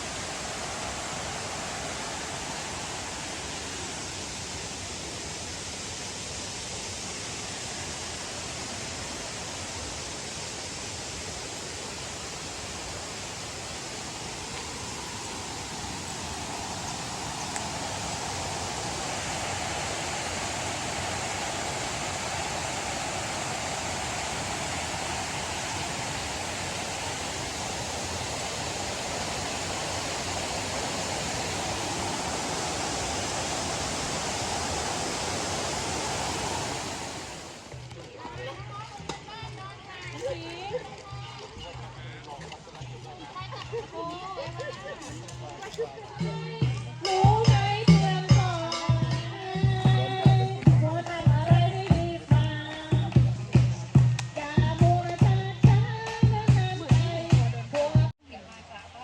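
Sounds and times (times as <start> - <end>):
waterfall rushing: 0.0 - 37.8.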